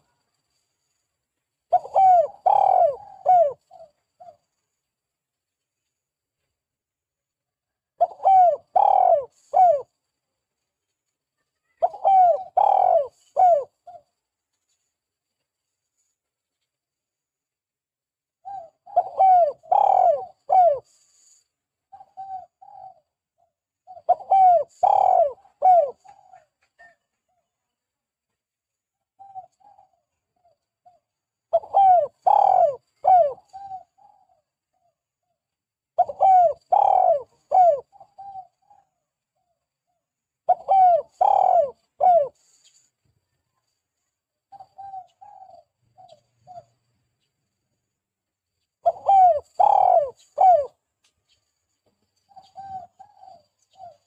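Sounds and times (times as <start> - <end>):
dove cooing: 1.7 - 4.5, 8.0 - 9.9, 11.7 - 14.0, 18.4 - 21.0, 21.9 - 27.5, 29.2 - 35.0, 36.0 - 39.6, 40.4 - 42.9, 44.5 - 46.8, 48.8 - 50.8, 52.3 - 54.0.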